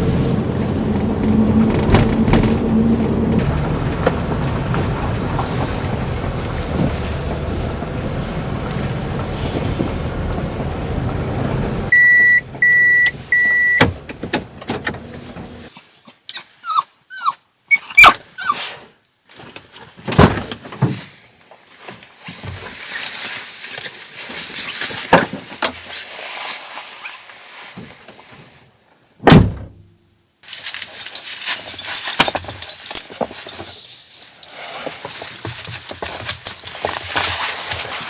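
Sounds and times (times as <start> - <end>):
rustling: 0.0 - 12.0, 30.4 - 38.0
thuds and knocks: 1.0 - 11.9.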